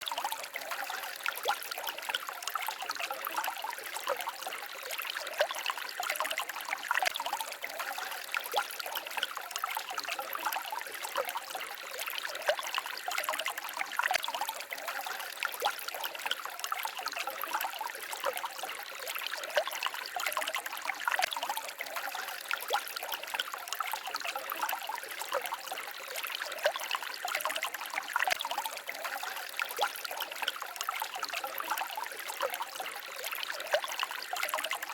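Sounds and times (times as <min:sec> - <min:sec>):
stream babbling over stones: 0:00.0 - 0:34.9.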